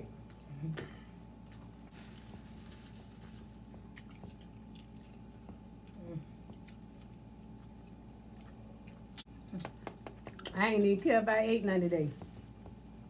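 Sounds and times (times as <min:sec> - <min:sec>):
short hummed vocal sound: 0:00.0 - 0:01.2, 0:05.9 - 0:06.7
faint steady hum: 0:00.0 - 0:13.0
people chewing: 0:00.1 - 0:10.6.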